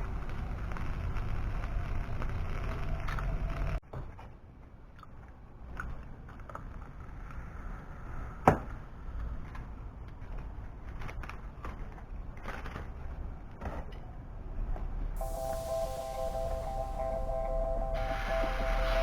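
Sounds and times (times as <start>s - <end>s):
wood stove crackling: 0.0s - 3.8s.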